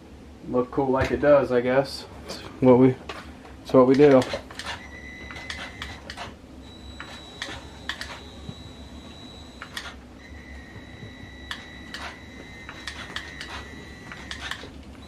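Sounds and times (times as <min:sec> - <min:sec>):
faint high whine: 0:04.8 - 0:06.0, 0:06.6 - 0:15.0.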